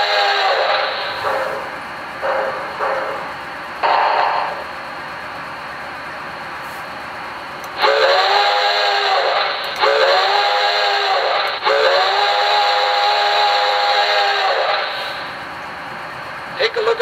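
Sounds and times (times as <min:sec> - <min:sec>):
steam hiss: 0:00.0 - 0:04.6, 0:07.8 - 0:15.5.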